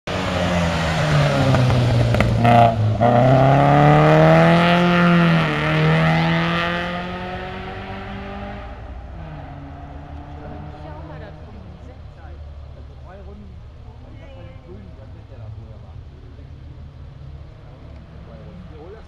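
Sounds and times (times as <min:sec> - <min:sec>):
rally car engine revving: 0:00.1 - 0:14.1
engine crackle: 0:00.1 - 0:19.0.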